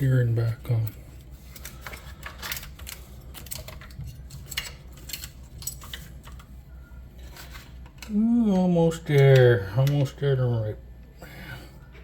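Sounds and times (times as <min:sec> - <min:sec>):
metal parts and tools clinking: 0:01.7 - 0:06.4.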